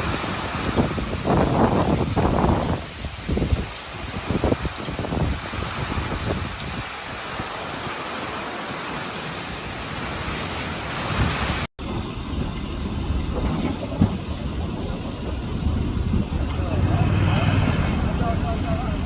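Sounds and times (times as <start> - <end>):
heavy rain hissing: 0.0 - 11.7
low rumble: 11.8 - 19.0.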